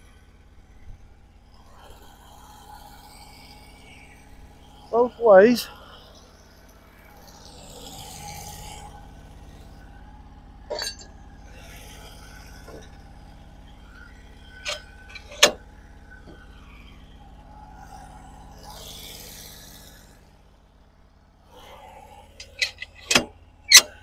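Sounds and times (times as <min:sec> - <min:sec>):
engine idling: 0:00.0 - 0:24.0
sharp metallic clinks: 0:10.7 - 0:11.1, 0:22.4 - 0:24.0.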